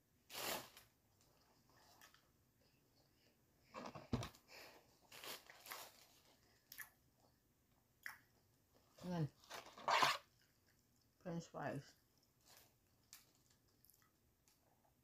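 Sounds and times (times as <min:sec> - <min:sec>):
chewing crispy chicken: 0:12.1 - 0:14.6.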